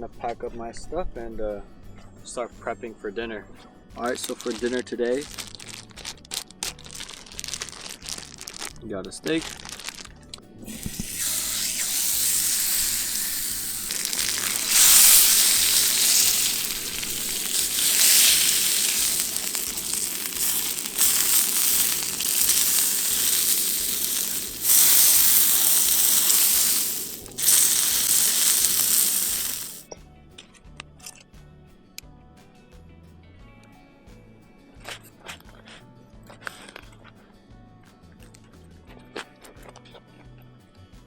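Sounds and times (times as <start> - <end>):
steak sizzling in a pan: 10.7 - 29.8.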